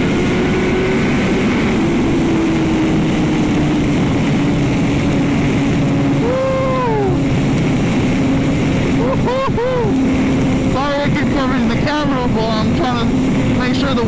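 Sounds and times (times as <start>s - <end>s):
motorcycle engine: 0.0s - 14.0s
wind rushing over microphone: 0.0s - 14.0s
rising and falling whoop: 6.1s - 7.4s, 9.0s - 10.0s.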